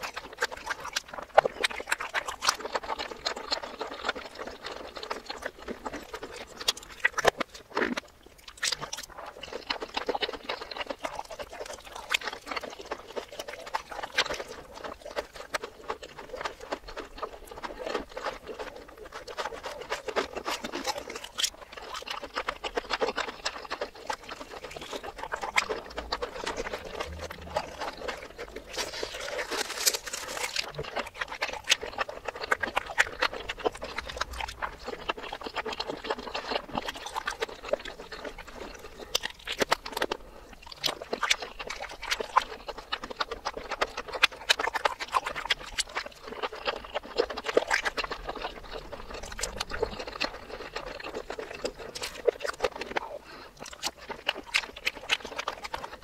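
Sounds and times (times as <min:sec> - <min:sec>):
mouth clicks and smacks: 0:00.0 - 0:56.0
reversed crunching and chewing: 0:00.0 - 0:56.0.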